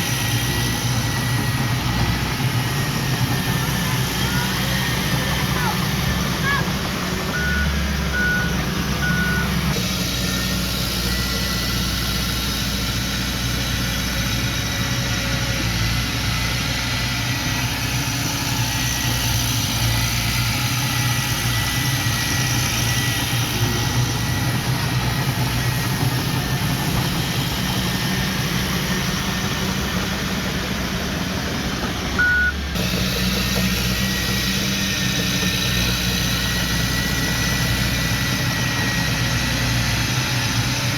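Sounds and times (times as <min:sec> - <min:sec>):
heavy diesel machinery running: 0:00.0 - 0:40.9
reversing alarm beeps: 0:07.3 - 0:09.7, 0:32.2 - 0:32.7.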